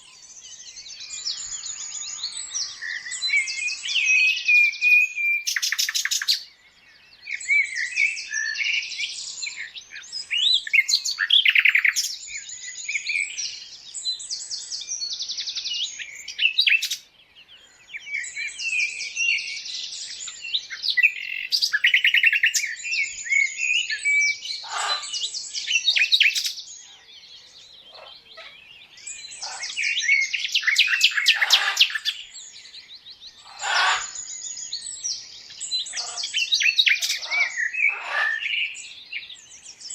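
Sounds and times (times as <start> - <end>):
birds chirping and trilling: 0.0 - 39.9
harsh bird calls: 7.2 - 13.7, 15.9 - 39.9.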